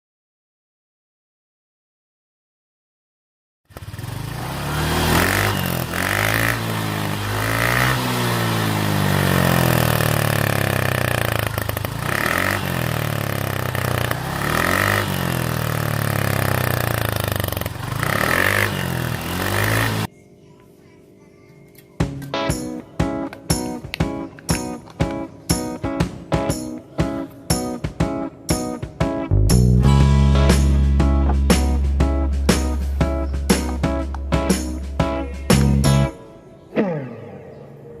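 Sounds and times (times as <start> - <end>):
motorcycle engine revving: 3.7 - 20.1.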